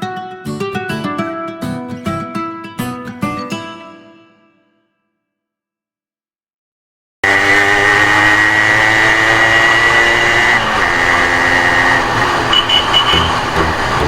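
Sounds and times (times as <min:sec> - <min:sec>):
motorcycle engine running: 0:07.2 - 0:14.0
short high beeps: 0:12.5 - 0:13.5.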